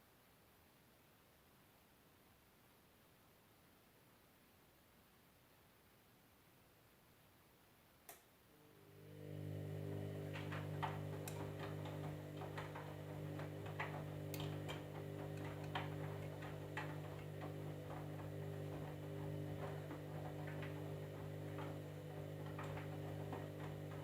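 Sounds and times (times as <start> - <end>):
electric motor hum: 8.6 - 24.0
washing machine click: 9.5 - 24.0.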